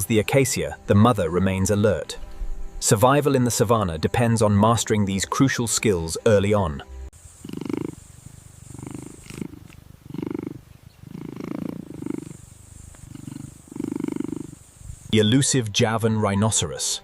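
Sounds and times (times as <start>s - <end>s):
cheetah purring: 7.2s - 15.0s.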